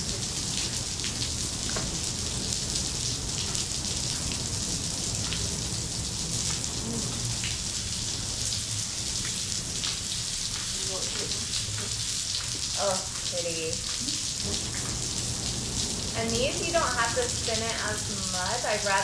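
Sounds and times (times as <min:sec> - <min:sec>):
artificial rain hissing: 0:00.0 - 0:19.0
low rumble: 0:14.3 - 0:18.4.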